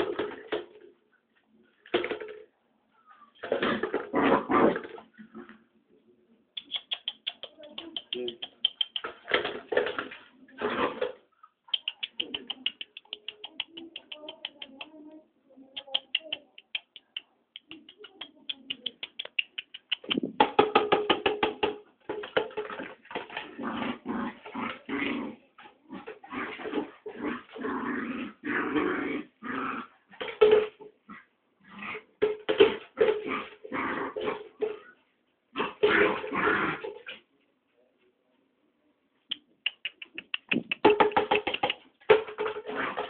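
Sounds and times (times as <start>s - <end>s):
dog growling: 23.4s - 30.0s, 33.1s - 34.5s.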